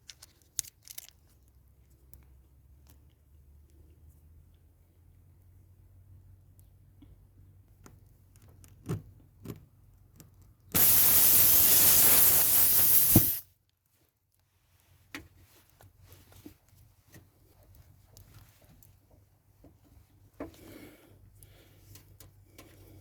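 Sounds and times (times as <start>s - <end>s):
spray hiss: 10.8s - 13.4s.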